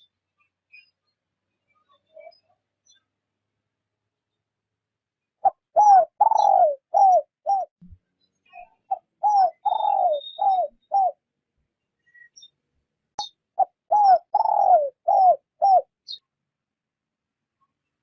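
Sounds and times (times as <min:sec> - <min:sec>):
dove cooing: 0:05.4 - 0:07.7, 0:08.9 - 0:11.2, 0:13.6 - 0:15.9.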